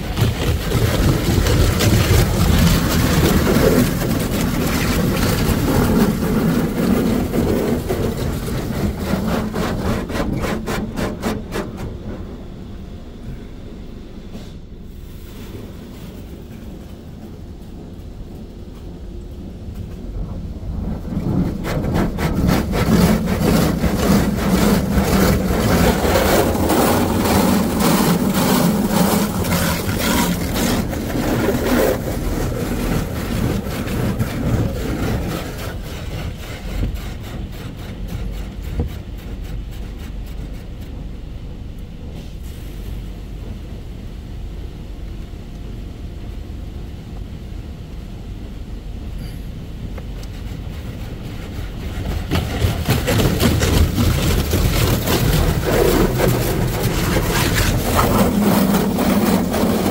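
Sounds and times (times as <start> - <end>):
car wash machine rushing: 0.0 - 13.0, 19.4 - 44.0, 47.9 - 59.9
low rumble: 12.0 - 36.5.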